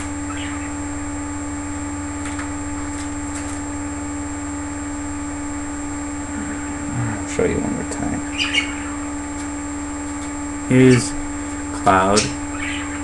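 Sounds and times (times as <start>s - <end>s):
electrical hum: 0.0s - 13.0s
high chirps: 0.2s - 0.8s, 8.2s - 9.1s.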